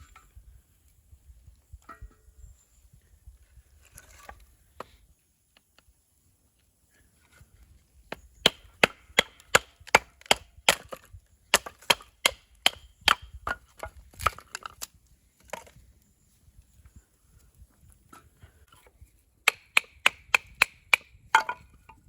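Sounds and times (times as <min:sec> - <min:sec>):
wood being chopped: 0:08.1 - 0:14.9, 0:19.4 - 0:21.8.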